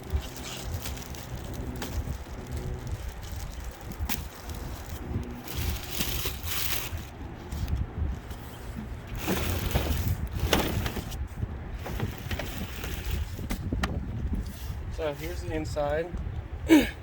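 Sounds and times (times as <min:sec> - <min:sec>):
packaging rustling and crinkling: 0:00.0 - 0:08.4, 0:09.0 - 0:11.2, 0:11.8 - 0:13.8
wind rumble on microphone: 0:00.0 - 0:17.0.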